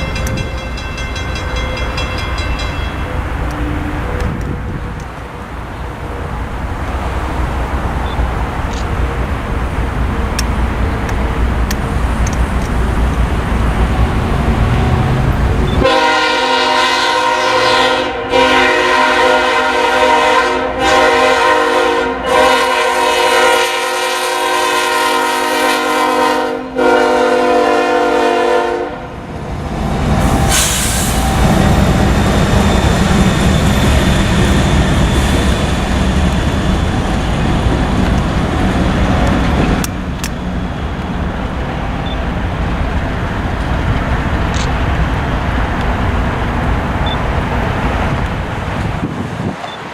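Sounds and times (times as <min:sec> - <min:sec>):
freight train rumbling: 0:00.0 - 0:49.9
locomotive air horn: 0:15.8 - 0:29.2.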